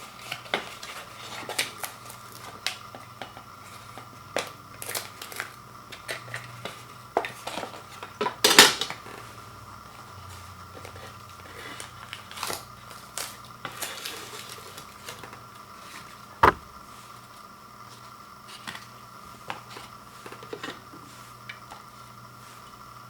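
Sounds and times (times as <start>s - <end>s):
loud sharp knock: 16.4s - 16.8s.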